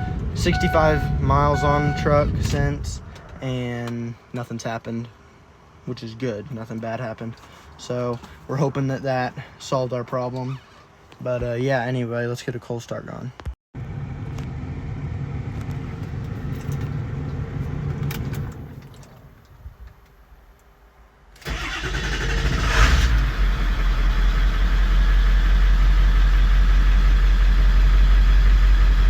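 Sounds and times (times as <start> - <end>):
diesel engine starting and idling: 0.0 - 3.3, 21.4 - 29.0
low hum: 0.0 - 3.4.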